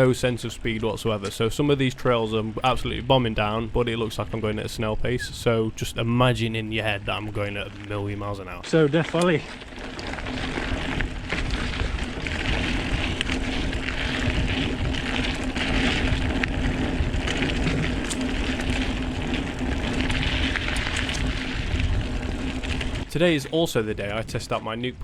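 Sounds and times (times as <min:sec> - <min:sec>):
tyres rushing on dirt trail: 0:00.0 - 0:25.0
bike rattles and knocks: 0:07.2 - 0:24.3.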